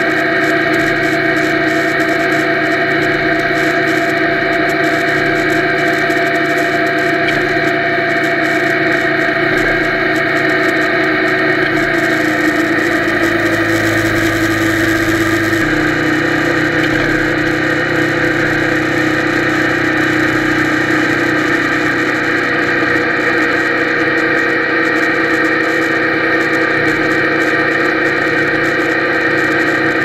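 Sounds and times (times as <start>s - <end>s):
muffled motorcycle engine running: 0.0s - 30.0s.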